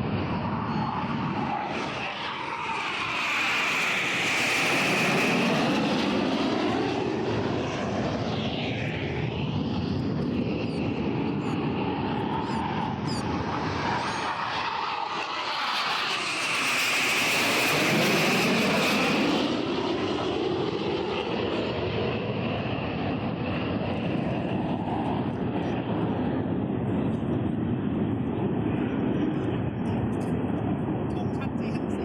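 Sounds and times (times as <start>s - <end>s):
aircraft engine flying past: 0.0s - 32.0s.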